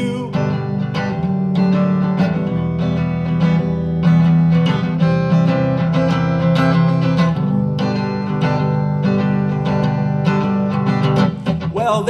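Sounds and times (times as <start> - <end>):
person singing: 0.0 - 0.6, 11.7 - 12.0
acoustic guitar strumming: 0.0 - 12.0.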